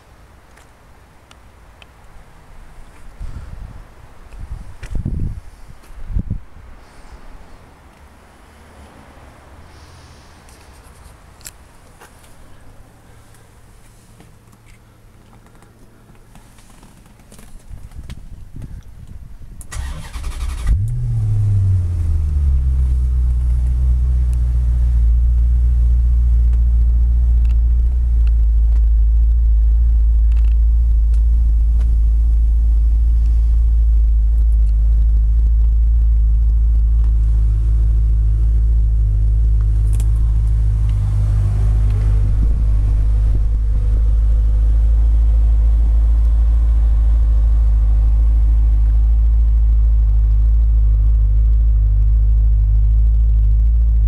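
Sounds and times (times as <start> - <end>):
car engine starter cranking: 19.7 - 21.5
car engine deep idle: 19.8 - 53.9.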